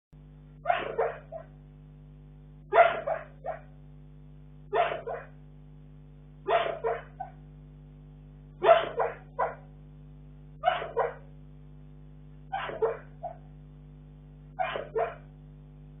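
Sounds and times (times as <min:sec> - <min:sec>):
dog barking short barks: 0:00.7 - 0:01.5, 0:02.7 - 0:03.7, 0:04.7 - 0:05.4, 0:06.5 - 0:07.4, 0:08.6 - 0:09.7, 0:10.6 - 0:11.3, 0:12.5 - 0:13.4, 0:14.6 - 0:15.3.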